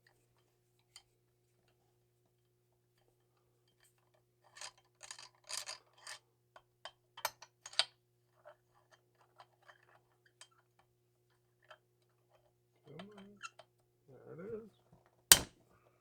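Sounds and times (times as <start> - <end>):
sharp metallic clicks: 15.3 - 15.5.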